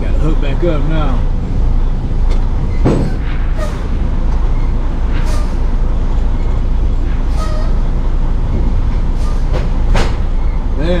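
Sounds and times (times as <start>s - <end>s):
diesel truck engine rumbling: 0.0s - 11.0s.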